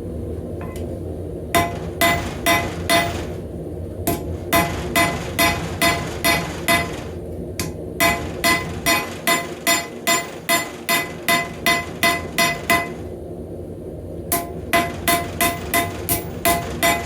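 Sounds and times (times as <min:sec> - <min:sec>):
hammer striking blade on anvil: 0:01.6 - 0:03.3, 0:04.1 - 0:13.0, 0:14.3 - 0:17.0.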